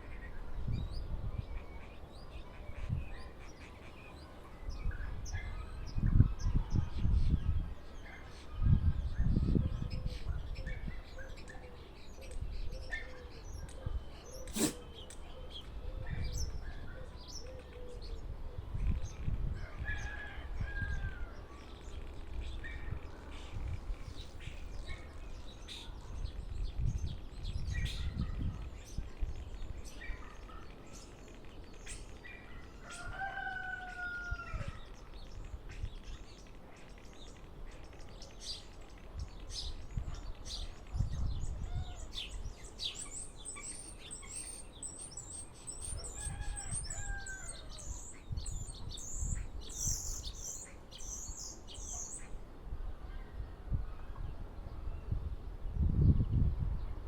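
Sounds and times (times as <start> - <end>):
bird clicks chirps and whistles: 13.6 - 15.8.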